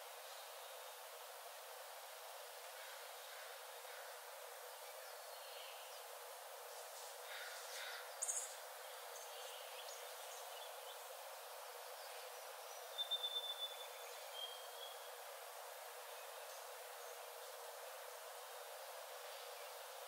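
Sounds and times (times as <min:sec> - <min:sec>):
steady hiss: 0:00.0 - 0:20.0
forest birds calling: 0:07.2 - 0:11.1, 0:11.7 - 0:15.1.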